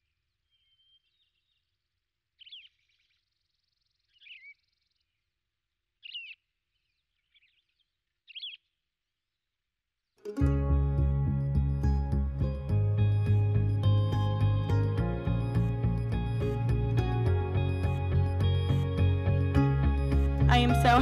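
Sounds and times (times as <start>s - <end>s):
faint bird twittering: 0.0s - 1.8s, 2.4s - 5.2s, 6.0s - 8.7s
bird chirps with sliding pitch: 8.3s - 8.6s.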